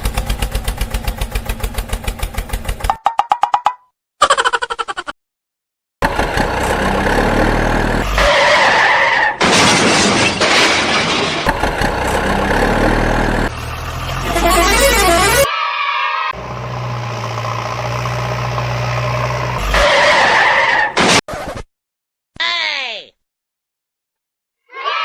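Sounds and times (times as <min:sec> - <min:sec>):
vehicle engine sounds: 0:00.0 - 0:03.0, 0:06.0 - 0:08.9, 0:11.5 - 0:20.7.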